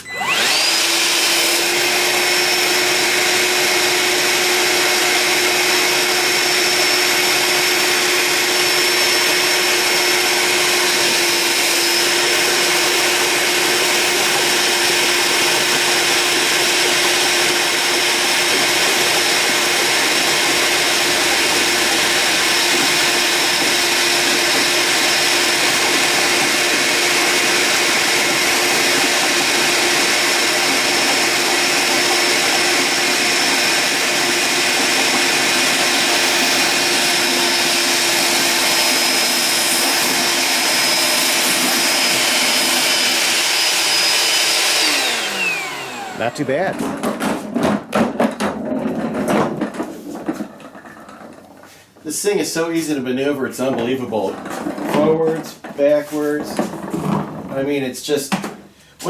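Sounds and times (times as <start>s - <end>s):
wet vacuum motor hum and whine: 0.0s - 47.0s.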